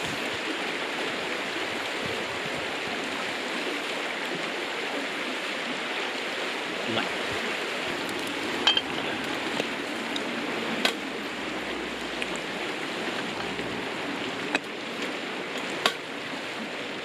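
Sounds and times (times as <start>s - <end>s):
river flowing: 0.0s - 17.0s
tableware clinking: 8.6s - 9.1s.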